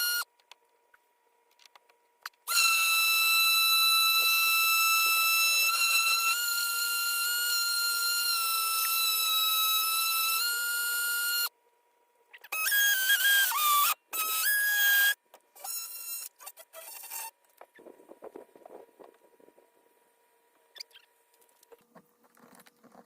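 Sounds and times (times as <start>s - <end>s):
power tool motor whining: 2.5s - 11.5s.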